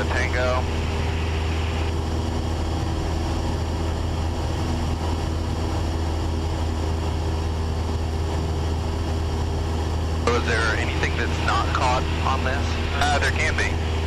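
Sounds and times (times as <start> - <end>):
airplane engine droning in cabin: 0.0 - 14.0.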